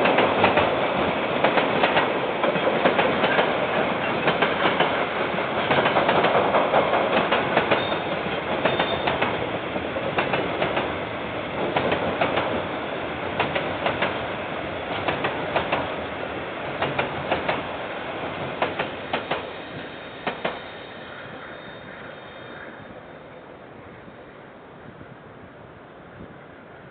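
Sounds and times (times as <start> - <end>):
train wheels clicking over rail joints: 0.0 - 20.7
train rumble: 0.0 - 26.9.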